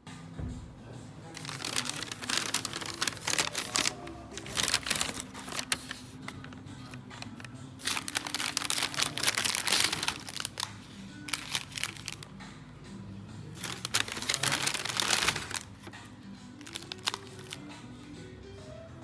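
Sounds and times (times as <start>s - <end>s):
soft background music: 0.0s - 19.0s
packaging crinkling and rustling: 1.4s - 12.3s, 13.6s - 17.6s.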